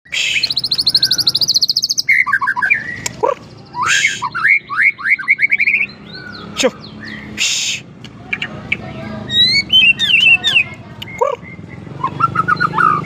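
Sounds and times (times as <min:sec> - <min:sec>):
songbird trilling and whistling: 0:00.1 - 0:13.0.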